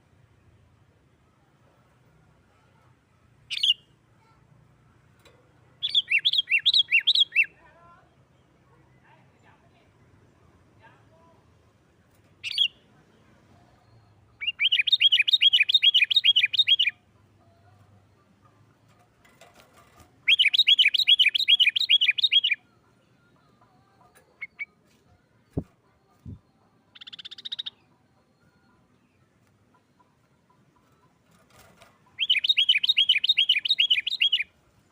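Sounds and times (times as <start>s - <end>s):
bird chirps: 3.5s - 4.0s, 5.8s - 7.6s, 12.4s - 12.8s, 13.6s - 19.1s, 19.8s - 34.6s
buzzy bird trill: 19.8s - 22.7s, 26.2s - 27.9s, 30.8s - 34.5s.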